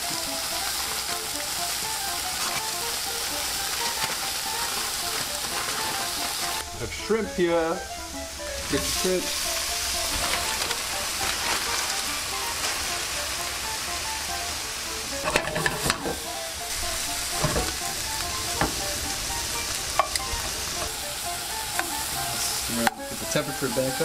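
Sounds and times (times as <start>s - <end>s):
seafood sizzling in oil: 0.0s - 24.0s
metal tongs clicking on pan: 20.0s - 20.3s.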